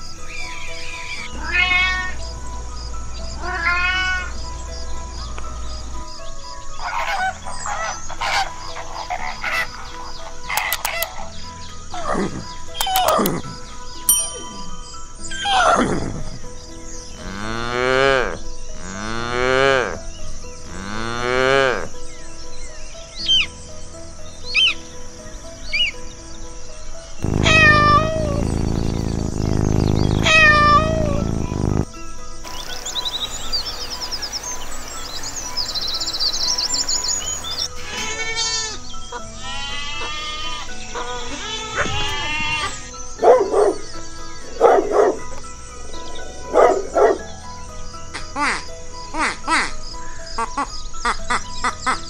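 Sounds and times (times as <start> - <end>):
birds trilling calls: 0.0 - 26.2, 27.1 - 52.0
young goat bleating: 27.2 - 31.8, 37.7 - 42.9
cow mooing: 27.2 - 31.9.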